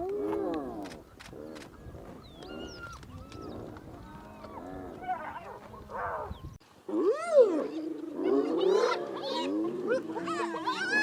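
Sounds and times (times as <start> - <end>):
hyenas calling: 0.1 - 6.4.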